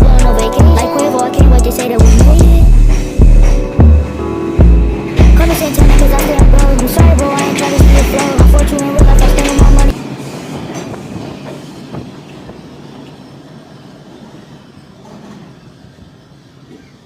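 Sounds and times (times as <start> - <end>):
rap music with heavy bass beat: 0.0 - 10.0
subway train rumble: 0.0 - 17.0.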